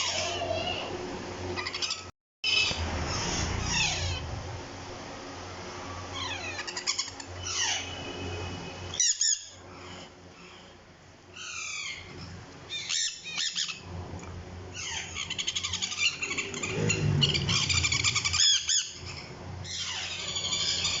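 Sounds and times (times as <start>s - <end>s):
parrot chicks chirping: 0.0s - 0.9s, 1.6s - 4.4s, 6.1s - 13.9s, 14.7s - 21.0s
parrot chicks squawking: 0.0s - 1.0s, 1.6s - 4.4s, 6.1s - 8.1s, 8.9s - 10.7s, 11.3s - 13.9s, 14.7s - 21.0s.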